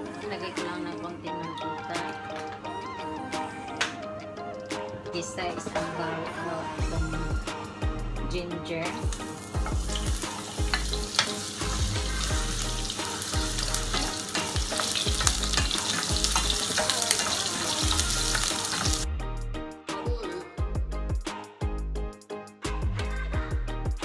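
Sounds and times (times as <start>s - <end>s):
background music: 0.0s - 24.0s
ginger sizzling in oil: 8.9s - 19.0s.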